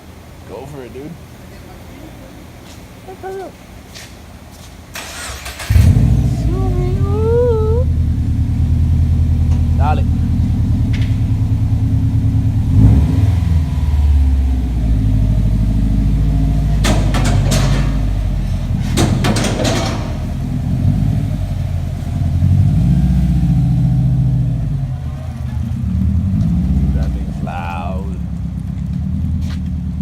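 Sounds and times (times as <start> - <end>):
car engine revving loud: 5.5 - 7.0, 7.9 - 18.9, 20.2 - 28.3.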